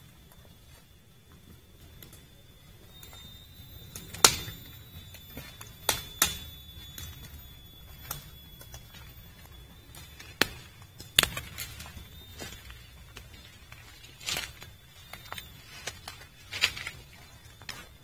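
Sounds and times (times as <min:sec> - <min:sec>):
faint high-pitched tone: 0:00.0 - 0:18.0.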